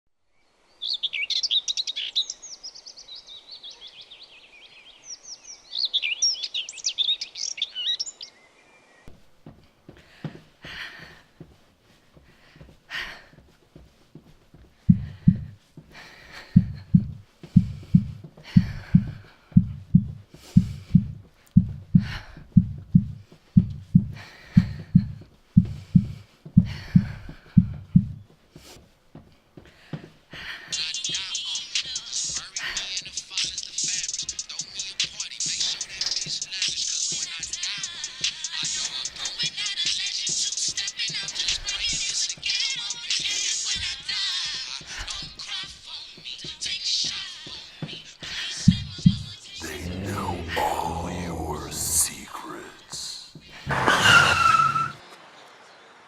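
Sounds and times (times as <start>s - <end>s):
songbirds chirping and trilling: 0.3s - 9.1s
heavy breathing: 9.9s - 28.8s, 29.6s - 30.8s, 49.6s - 55.0s
heartbeat double thump: 14.9s - 15.6s, 16.5s - 28.2s, 48.7s - 49.3s.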